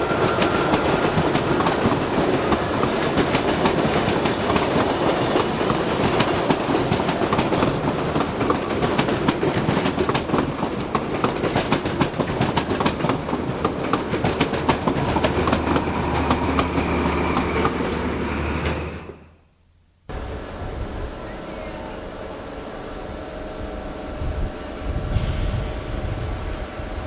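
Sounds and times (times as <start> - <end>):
train wheels clattering over rail joints: 0.0 - 19.1
train rumbling: 0.0 - 19.4, 20.1 - 27.0.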